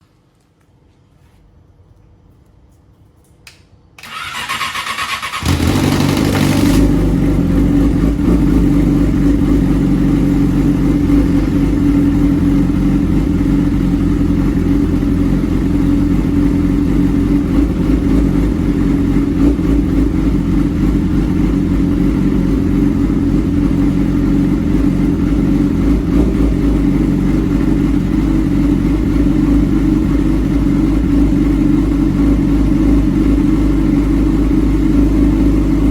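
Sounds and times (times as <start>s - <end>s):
motorcycle starter cranking: 4.0s - 7.1s
motorcycle engine idling loudly: 5.3s - 35.9s.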